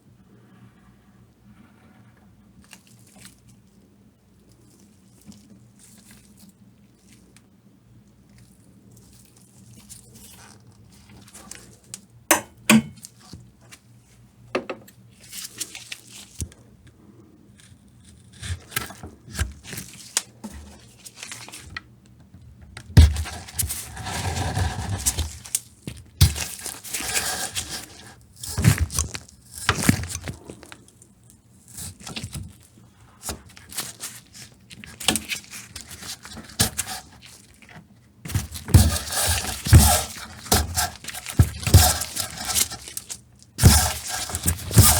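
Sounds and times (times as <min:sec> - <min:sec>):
leather scraping and rubbing: 0:23.2 - 0:25.4, 0:38.3 - 0:44.9.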